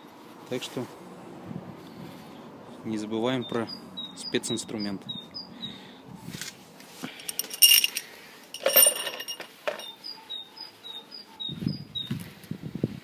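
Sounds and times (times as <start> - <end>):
bird chirping: 3.2 - 6.1, 9.7 - 12.2
steel bolts clinking: 7.1 - 10.0.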